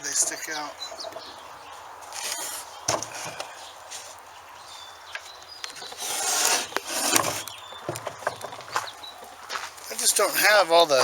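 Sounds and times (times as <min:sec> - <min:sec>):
wooden panel scraping: 0:02.0 - 0:04.1, 0:05.8 - 0:08.9.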